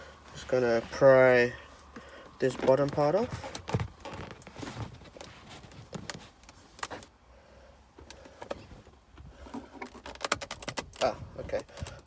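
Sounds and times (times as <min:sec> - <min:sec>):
plastic trim clicking and creaking: 0:09.5 - 0:12.0.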